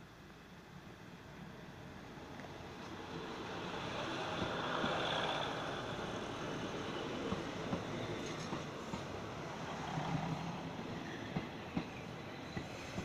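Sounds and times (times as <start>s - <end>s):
diesel train engine and wheels rumbling: 0.0s - 13.0s
wheels clicking on rails: 3.6s - 13.0s.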